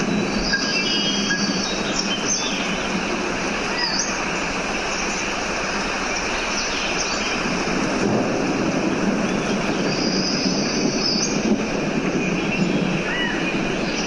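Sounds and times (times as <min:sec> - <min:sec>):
dense rushing noise: 0:00.0 - 0:14.0.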